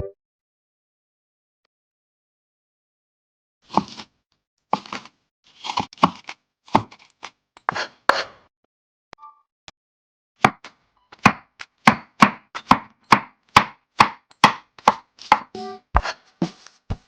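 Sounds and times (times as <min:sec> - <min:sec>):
knife chopping on cutting board: 0:03.7 - 0:04.1, 0:04.7 - 0:07.1, 0:10.4 - 0:16.6.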